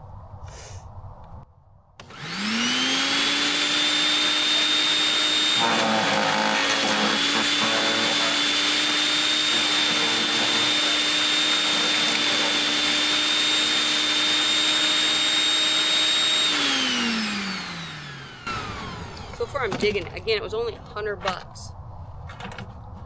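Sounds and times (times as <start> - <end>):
wood chipper motor whine: 2.0 - 19.9.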